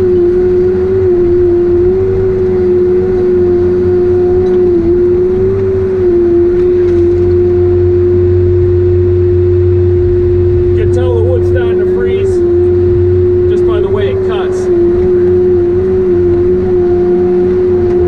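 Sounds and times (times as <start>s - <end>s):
heavy diesel machine engine drone: 0.0s - 18.0s.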